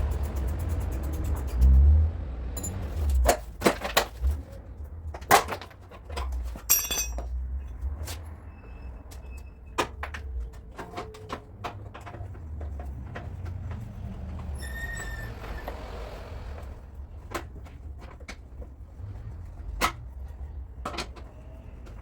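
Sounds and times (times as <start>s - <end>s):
tools knocking on metal: 6.7s - 7.3s.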